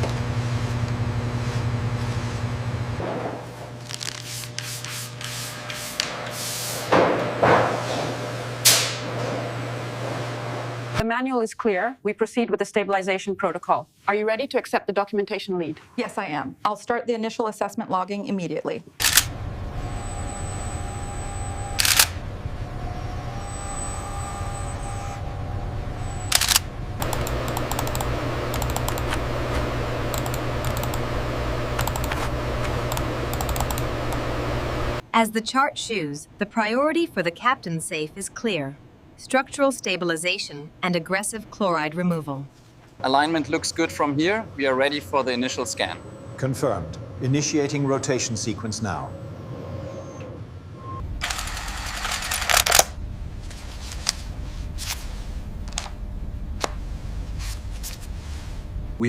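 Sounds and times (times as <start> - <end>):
sharp mechanical clicks: 19.0 - 19.3, 21.8 - 22.2, 26.3 - 29.2, 30.1 - 31.0, 31.8 - 32.2, 32.9 - 33.8
steady low hum: 19.0 - 35.1, 50.4 - 59.0
typing on computer keyboard: 26.4 - 29.1, 30.1 - 31.0, 31.8 - 32.3, 32.9 - 33.8.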